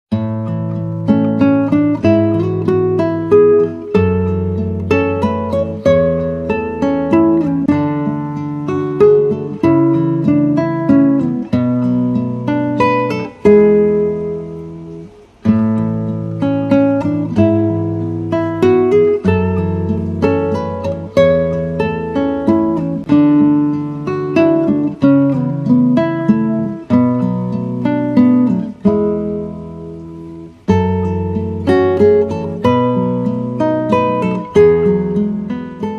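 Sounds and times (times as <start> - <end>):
acoustic guitar music: 0.1 - 35.9.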